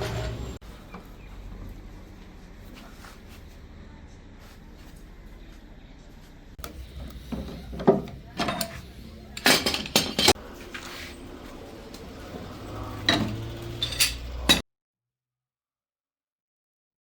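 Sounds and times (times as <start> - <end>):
low workshop hum: 0.0 - 14.6
hard objects clinking: 7.3 - 10.4, 13.0 - 14.6.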